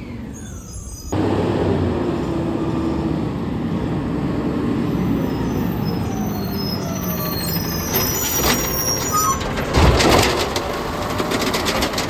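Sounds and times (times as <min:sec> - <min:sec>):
garbage truck engine running: 0:00.0 - 0:12.0.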